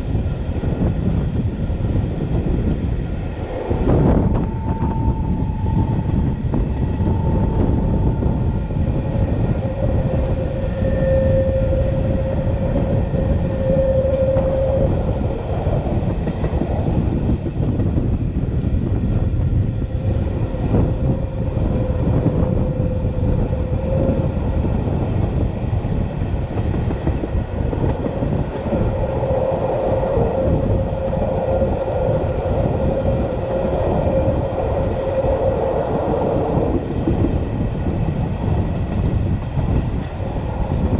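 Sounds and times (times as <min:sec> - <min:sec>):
train wheels rumbling on rails: 0:00.0 - 0:40.9
low hum: 0:01.0 - 0:38.0
thin high squeal: 0:04.3 - 0:15.0, 0:20.8 - 0:24.3.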